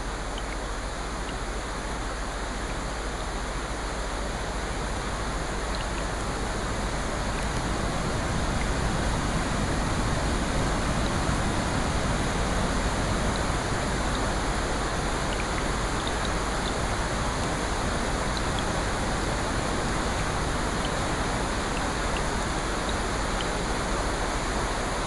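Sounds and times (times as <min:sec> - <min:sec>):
rushing water: 0:00.0 - 0:25.0
faint small ticks: 0:00.3 - 0:01.4, 0:05.7 - 0:06.1, 0:15.3 - 0:16.9.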